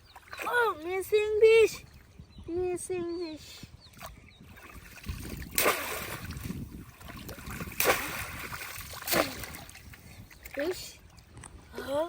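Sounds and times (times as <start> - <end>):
water sloshing: 0.0 - 2.2, 3.9 - 12.0
trap splashing into water: 5.3 - 9.8.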